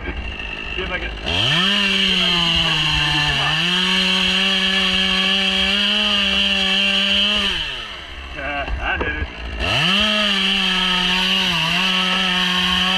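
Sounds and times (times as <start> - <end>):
chainsaw cutting wood: 0.0 - 12.9.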